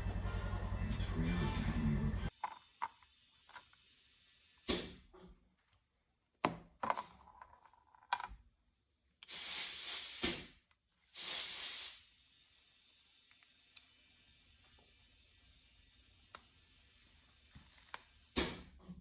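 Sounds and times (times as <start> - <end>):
hissing spray bursts: 9.2 - 13.2.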